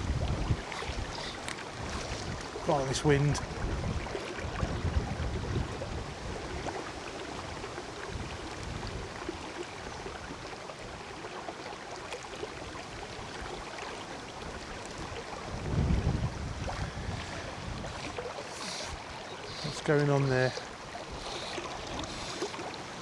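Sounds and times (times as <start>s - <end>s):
wind buffeting microphone: 0.0s - 6.8s, 15.0s - 18.3s
river water rushing: 0.0s - 23.0s.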